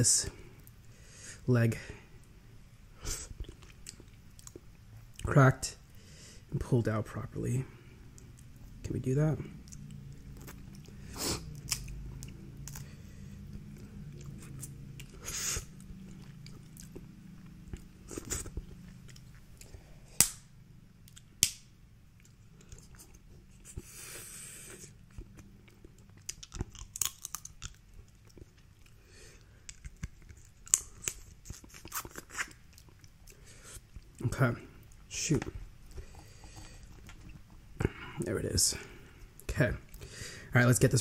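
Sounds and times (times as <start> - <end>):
close-up chewing: 9.6 - 19.8, 24.7 - 34.2
crab shells cracking: 26.1 - 27.9.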